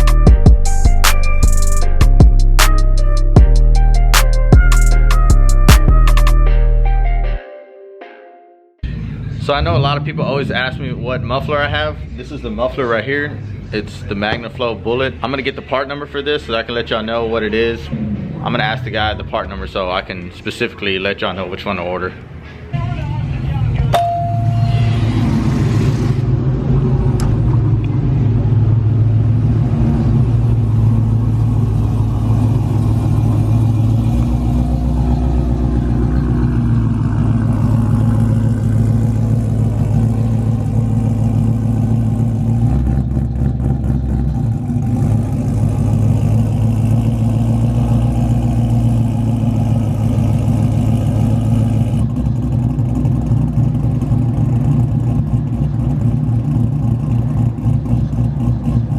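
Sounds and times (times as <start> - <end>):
vehicle engine exhaust note: 0.0 - 7.2, 22.8 - 58.9.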